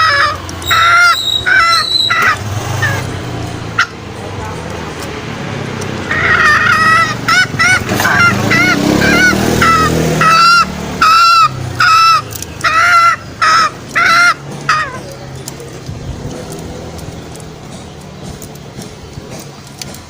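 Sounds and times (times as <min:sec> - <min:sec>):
junglefowl calling: 0:00.0 - 0:04.1, 0:06.0 - 0:15.2.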